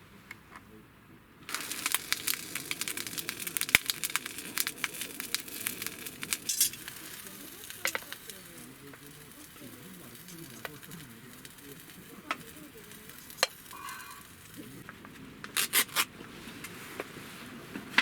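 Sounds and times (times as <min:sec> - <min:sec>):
food sizzling in a frying pan: 0:01.5 - 0:14.9.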